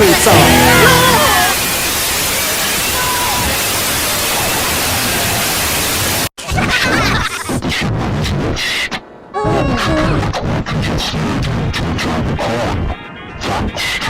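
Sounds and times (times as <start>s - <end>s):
voices: 0.0s - 1.6s
loud static hiss: 0.0s - 6.3s.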